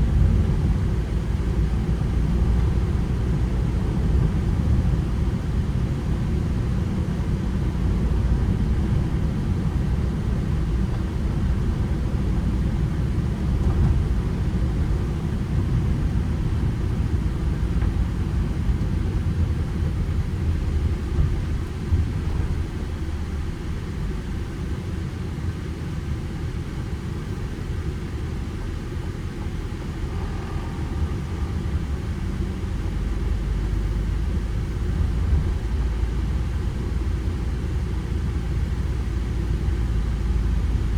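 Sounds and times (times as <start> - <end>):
van engine and road rumble: 0.0 - 40.9.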